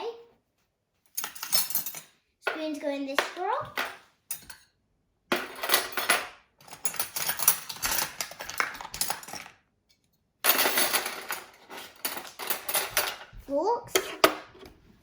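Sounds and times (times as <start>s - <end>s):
metal spoons clinking: 1.2s - 2.2s, 3.8s - 4.8s, 5.4s - 9.5s.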